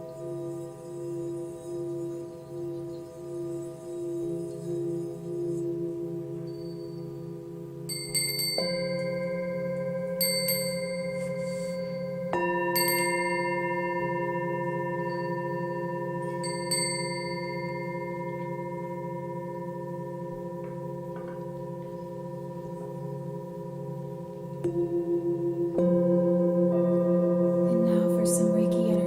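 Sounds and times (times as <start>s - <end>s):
singing bowls droning: 0.0s - 29.0s
bright metallic strikes: 6.4s - 24.0s.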